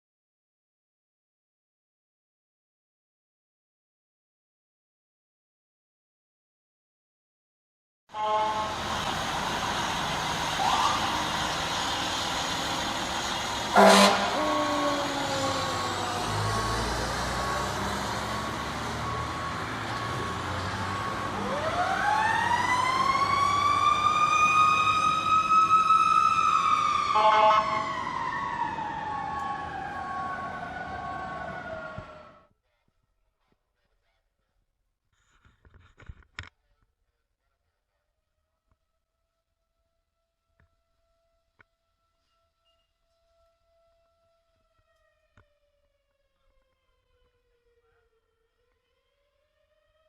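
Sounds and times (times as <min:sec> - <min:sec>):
loud horn blast: 0:08.1 - 0:09.1, 0:13.7 - 0:15.2, 0:27.2 - 0:27.9
fire engine siren: 0:08.1 - 0:32.5, 0:41.9 - 0:50.0
truck engine running: 0:08.6 - 0:21.7.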